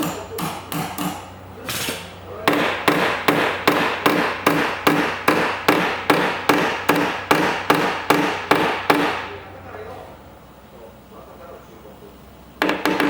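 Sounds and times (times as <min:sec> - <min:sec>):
hammer striking metal panel: 0:00.0 - 0:09.2, 0:12.6 - 0:13.0.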